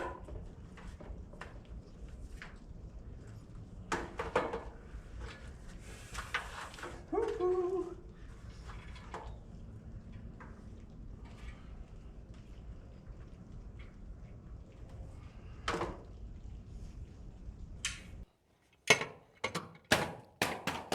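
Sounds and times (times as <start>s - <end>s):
person shouting woo-hoo: 7.1s - 8.1s.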